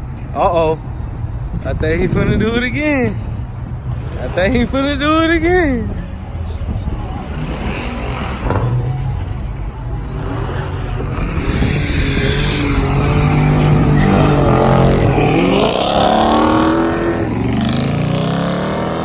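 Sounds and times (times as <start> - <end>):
car engines revving hard: 6.6 - 19.0
rising tyre squeals: 10.1 - 18.4.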